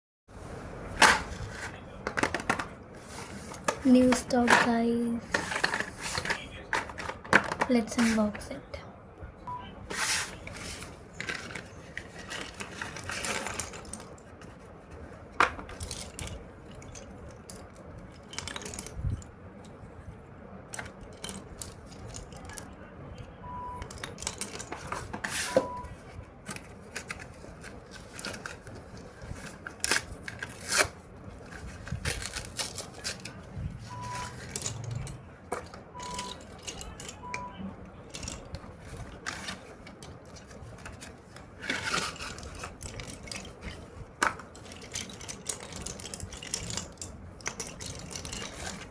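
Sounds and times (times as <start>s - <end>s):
pencils clicking and tapping: 2.0s - 8.6s, 11.2s - 19.8s, 20.7s - 22.8s, 23.8s - 48.9s
packaging tearing and rustling: 26.9s - 33.4s.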